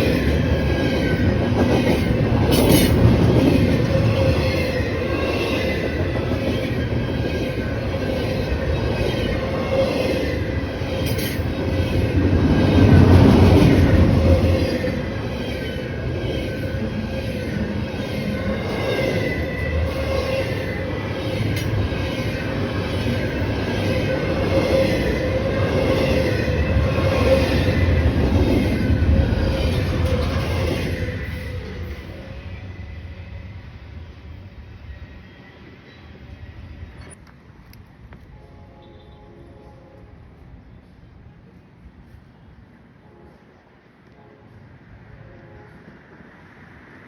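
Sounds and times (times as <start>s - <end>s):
train rumbling along rails: 0.0s - 47.0s.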